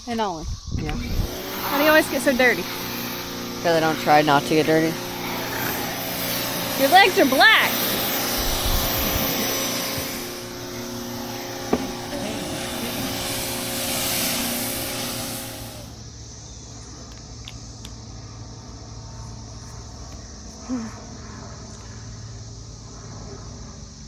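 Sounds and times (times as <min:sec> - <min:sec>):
steady hum: 0:00.9 - 0:17.0
pressure washer spraying water: 0:01.0 - 0:16.2.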